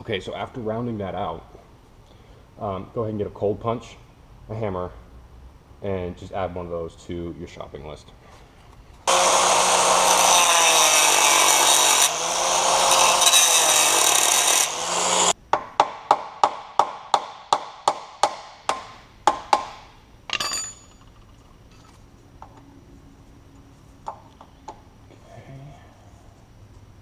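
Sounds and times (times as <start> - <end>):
power tool running: 9.1 - 15.4.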